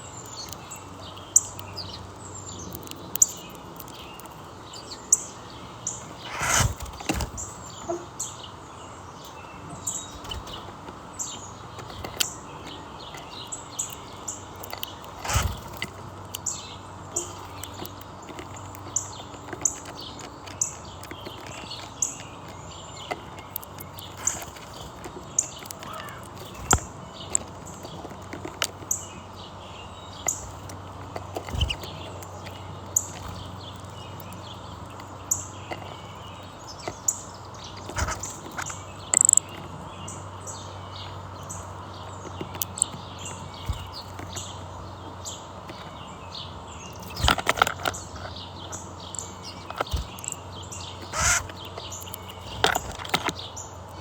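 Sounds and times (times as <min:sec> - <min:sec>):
small birds chirping: 0:00.0 - 0:54.0
sharp clicks: 0:10.0 - 0:29.0, 0:30.1 - 0:39.7, 0:46.9 - 0:54.0.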